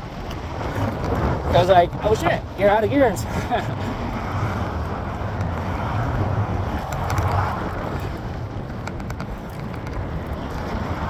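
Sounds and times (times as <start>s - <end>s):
road and tyre noise: 0.0s - 11.0s
wind buffeting microphone: 0.0s - 11.0s
faint ticks: 6.8s - 10.8s.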